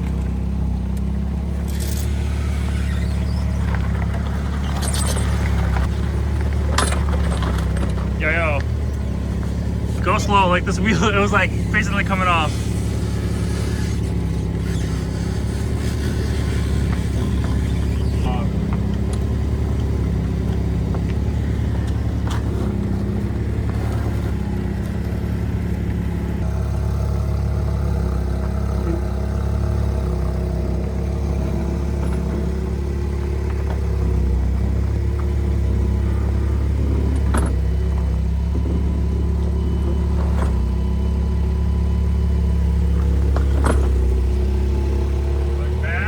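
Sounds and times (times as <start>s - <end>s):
vehicle engine idling: 0.0s - 46.0s
light clanks: 0.9s - 9.9s.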